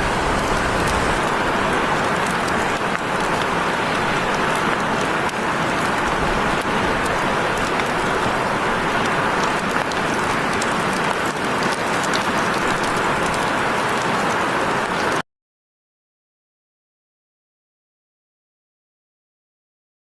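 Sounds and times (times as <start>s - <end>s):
heavy rain falling: 0.0s - 15.2s.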